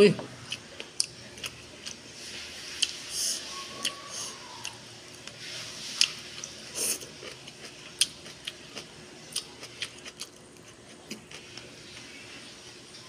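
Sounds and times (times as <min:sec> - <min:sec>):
person chewing with wet smacks: 0:00.4 - 0:02.0, 0:02.8 - 0:03.1, 0:06.0 - 0:12.1.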